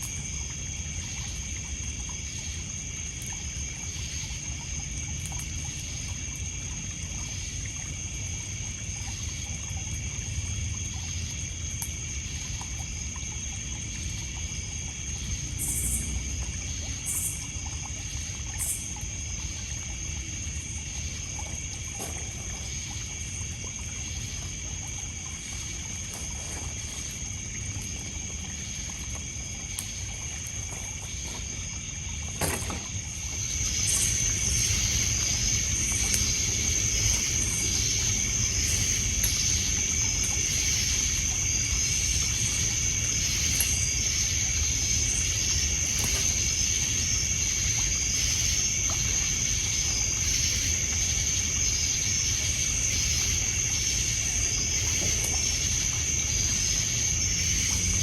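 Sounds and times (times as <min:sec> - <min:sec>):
night insects trilling: 0:00.0 - 0:58.0
water lapping on pebbles: 0:00.0 - 0:58.0
fire crack: 0:21.0 - 0:58.0.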